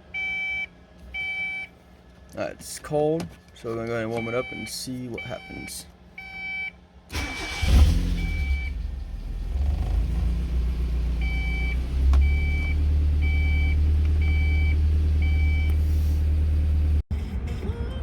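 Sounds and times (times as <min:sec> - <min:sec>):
car engine cranking and idling: 0:07.1 - 0:17.0.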